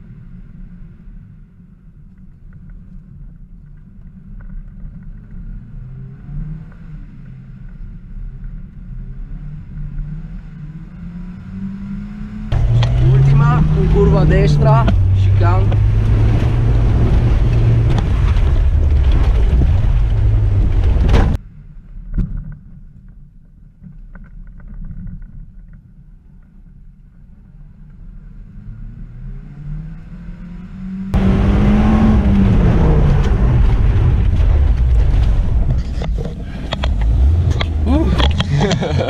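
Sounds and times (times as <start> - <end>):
road noise: 0.0 - 24.8, 25.8 - 39.0
car engine under load: 3.8 - 21.4, 27.9 - 39.0
muffled engine sound: 12.5 - 21.9, 30.7 - 39.0.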